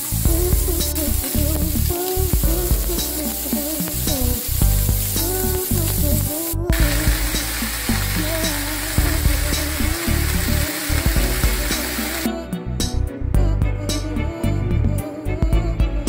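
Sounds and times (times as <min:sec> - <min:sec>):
food sizzling in a frying pan: 0:00.0 - 0:12.3
background music: 0:00.0 - 0:16.0.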